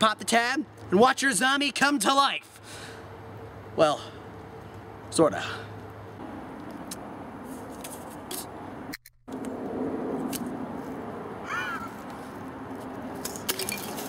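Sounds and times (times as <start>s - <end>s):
bird cawing: 11.4s - 12.1s.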